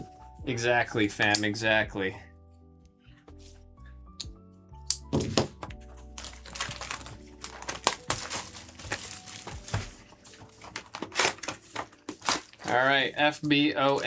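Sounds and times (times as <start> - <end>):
faint background music: 0.0 - 14.0
plastic packaging crinkling: 5.7 - 14.0.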